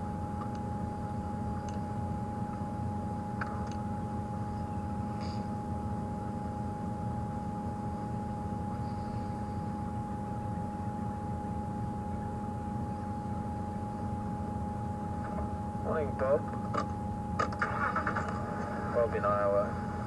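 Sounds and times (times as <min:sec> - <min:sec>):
high engine whine: 0:00.0 - 0:20.0
vehicle engine rumbling: 0:17.5 - 0:20.0.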